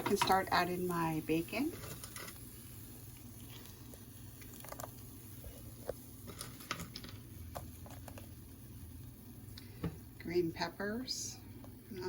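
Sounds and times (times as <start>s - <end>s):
bacon dropped into frying pan: 6.3s - 8.2s.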